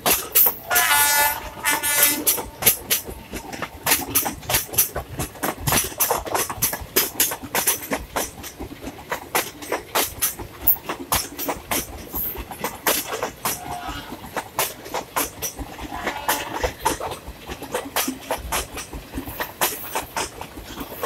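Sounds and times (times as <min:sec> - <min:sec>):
train wheels clattering over rail joints: 0:00.0 - 0:21.0.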